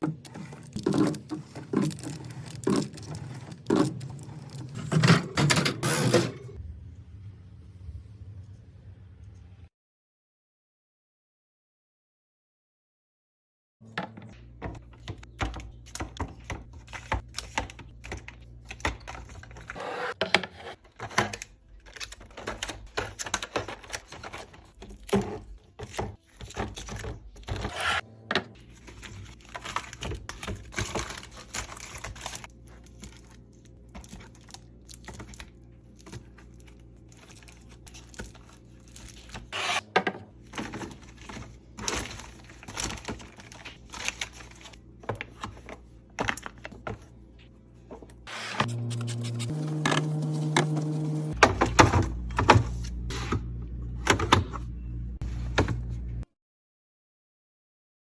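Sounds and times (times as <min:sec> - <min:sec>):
packaging crinkling: 0:28.6 - 0:39.5.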